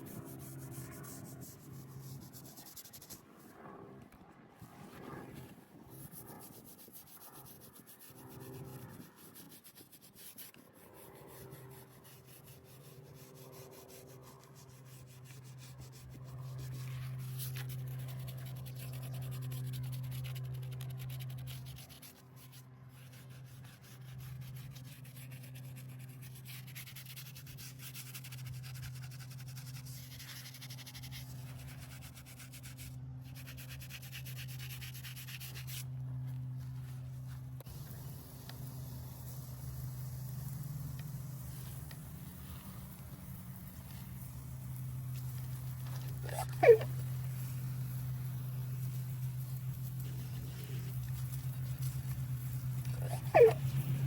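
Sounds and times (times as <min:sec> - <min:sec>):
steady low hum: 0:28.3 - 0:54.0
scrubbing on stone: 0:41.3 - 0:54.0.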